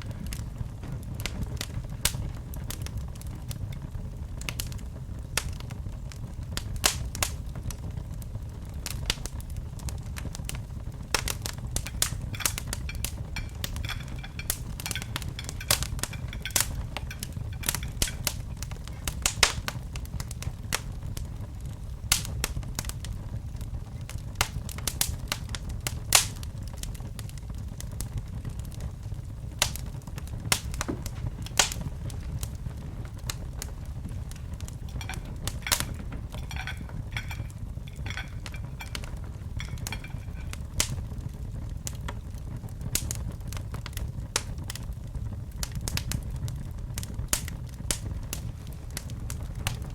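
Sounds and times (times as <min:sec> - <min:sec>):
wood fire crackling and popping: 0:00.0 - 0:49.9
low rumble: 0:29.4 - 0:41.0.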